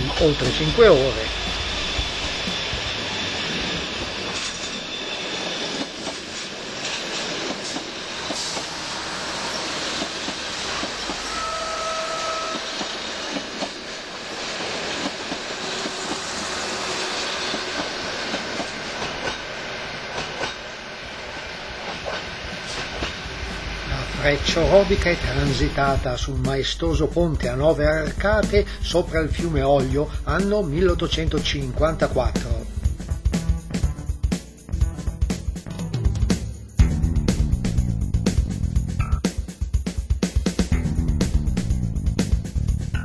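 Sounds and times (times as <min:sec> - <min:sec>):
train wheels rumbling on rails: 0:00.0 - 0:43.0
train wheel clicks: 0:02.4 - 0:08.8, 0:09.5 - 0:20.8, 0:21.8 - 0:26.2
short steady tone: 0:11.1 - 0:12.8.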